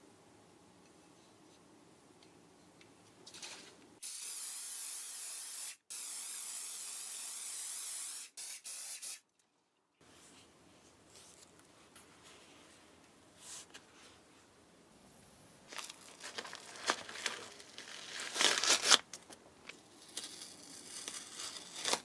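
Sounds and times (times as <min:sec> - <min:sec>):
spray can hissing: 0:04.0 - 0:09.2.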